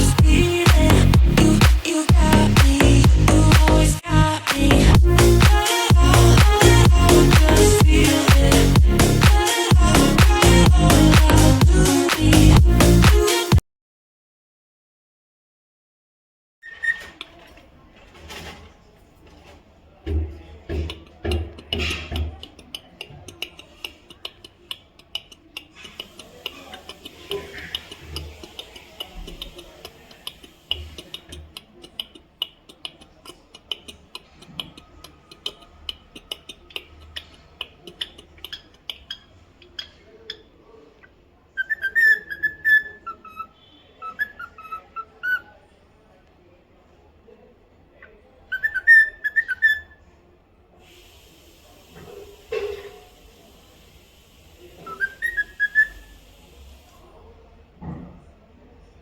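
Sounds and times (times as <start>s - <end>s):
faint ticking and chatter: 17.0s - 59.0s
cockatiel whistling: 41.6s - 45.4s, 48.5s - 49.9s, 54.8s - 56.2s.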